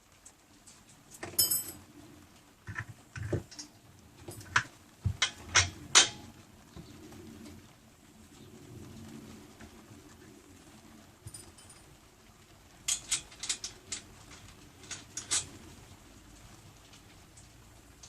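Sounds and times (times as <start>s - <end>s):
metal tools clicking and knocking: 1.2s - 1.8s
metallic clink: 1.2s - 1.8s, 11.3s - 11.9s.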